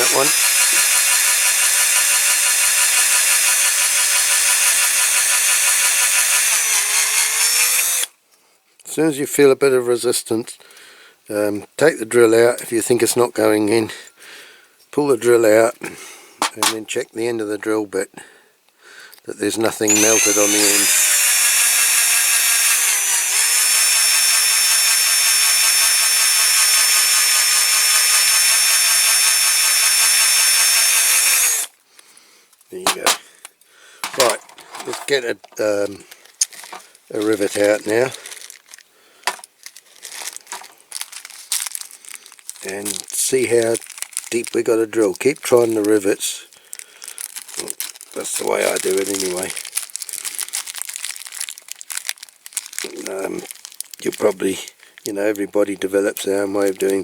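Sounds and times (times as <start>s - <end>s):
small power drill whining: 0.0s - 8.1s, 19.8s - 31.8s, 39.3s - 39.5s.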